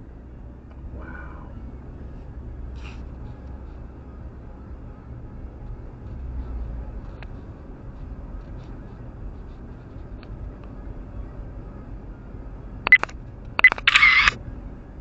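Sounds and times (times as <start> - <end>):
road rumble inside car: 0.0 - 15.0
sharp high-pitched clicks: 12.9 - 14.4.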